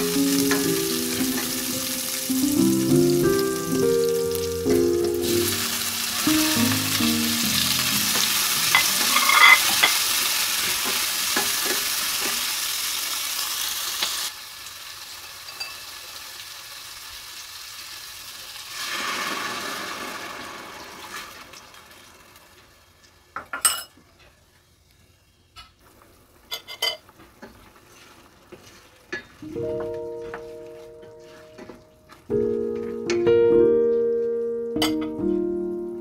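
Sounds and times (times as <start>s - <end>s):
vegetables sizzling in hot oil: 0.0s - 23.4s, 25.8s - 29.8s
stirring in a pan: 25.8s - 29.4s.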